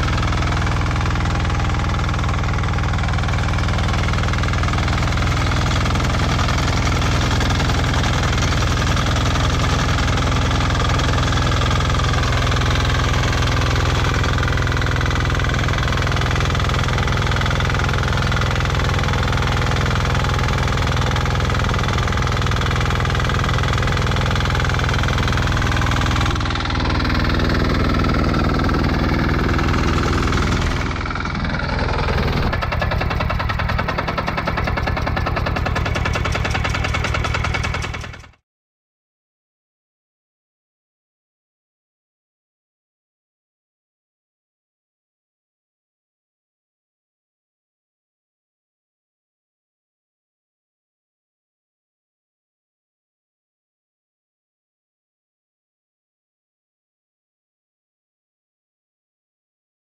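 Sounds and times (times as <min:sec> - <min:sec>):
walk-behind tractor engine running: 0:00.0 - 0:38.4.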